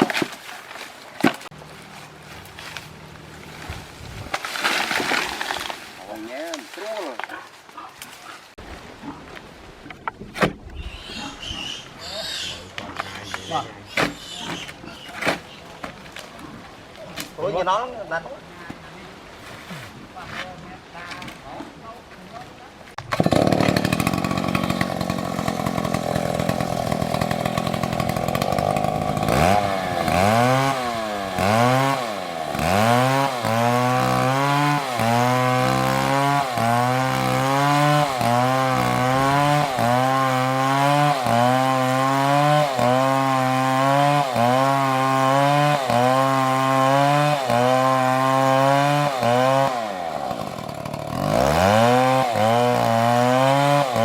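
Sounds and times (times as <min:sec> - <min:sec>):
chainsaw engine at high revs: 0:23.0 - 0:54.0.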